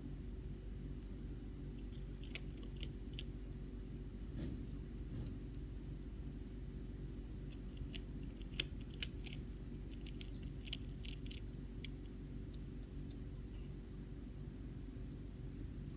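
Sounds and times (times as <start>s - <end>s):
steady low hum: 0.0s - 15.9s
hamster chewing: 0.4s - 15.9s.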